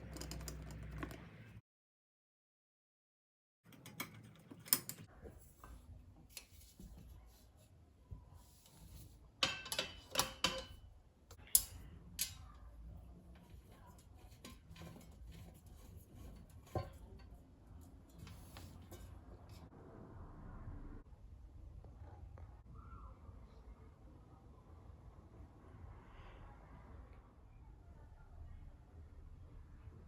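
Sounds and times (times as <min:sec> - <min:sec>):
household objects clicking and tapping: 0:00.0 - 0:01.6, 0:03.7 - 0:07.0, 0:09.4 - 0:12.6, 0:13.3 - 0:19.6.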